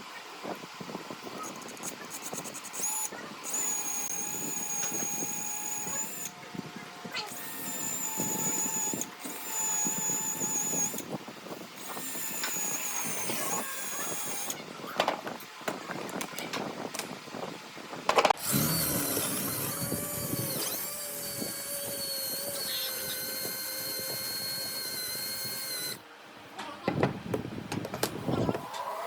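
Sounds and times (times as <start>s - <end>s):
power tools whining: 1.4s - 11.1s, 11.8s - 14.6s, 18.2s - 26.0s.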